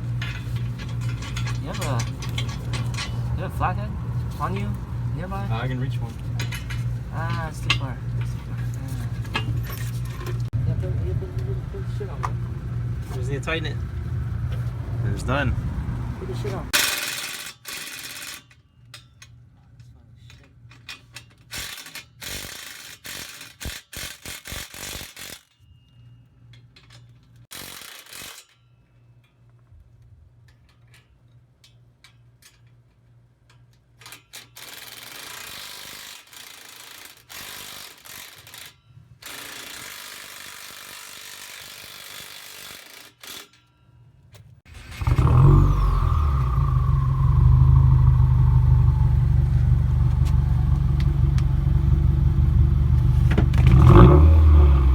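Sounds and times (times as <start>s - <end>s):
car engine deep rumble: 0.0s - 16.8s, 44.8s - 54.9s
ratchet wrench clicking: 16.8s - 19.1s, 20.8s - 25.5s, 26.8s - 28.6s, 33.5s - 43.7s.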